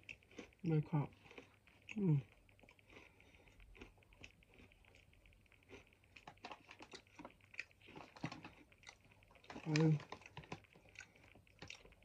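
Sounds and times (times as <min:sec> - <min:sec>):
chewing crisps: 0:00.0 - 0:12.0.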